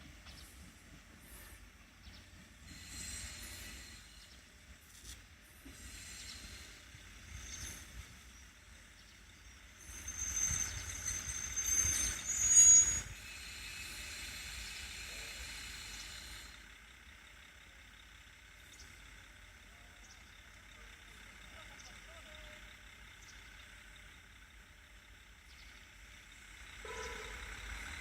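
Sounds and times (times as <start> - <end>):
train air brakes hissing: 0.3 - 8.9, 9.6 - 16.8
high squeal: 9.8 - 13.6.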